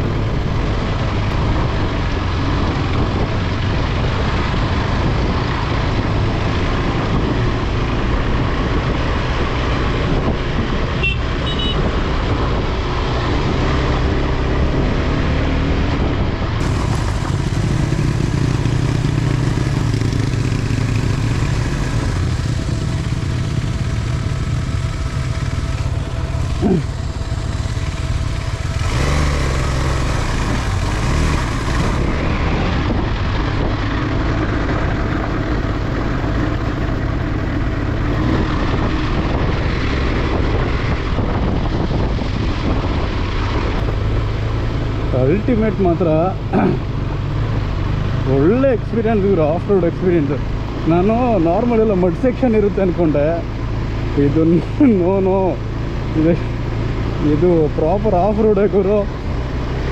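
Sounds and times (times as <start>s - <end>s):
motorcycle engine under load: 15.9s - 59.9s.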